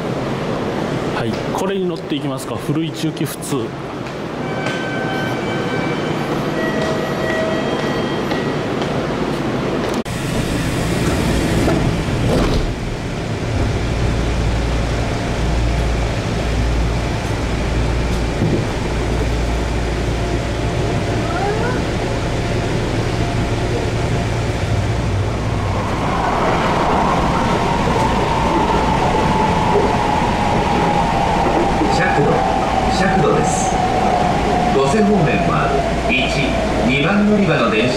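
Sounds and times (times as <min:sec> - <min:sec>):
low train interior hum: 0:00.0 - 0:37.9
train running: 0:03.7 - 0:37.9
rising electric whine: 0:23.3 - 0:36.6.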